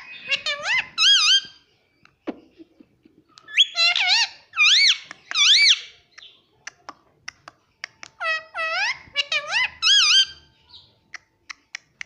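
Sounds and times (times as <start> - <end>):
parrot calling: 0.0 - 1.6, 3.4 - 5.9, 8.1 - 10.9.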